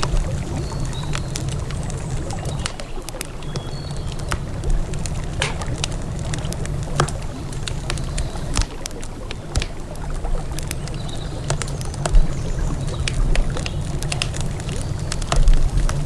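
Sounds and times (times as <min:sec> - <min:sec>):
campfire crackling and popping: 0:00.0 - 0:16.0
steady low rumble: 0:04.0 - 0:08.6.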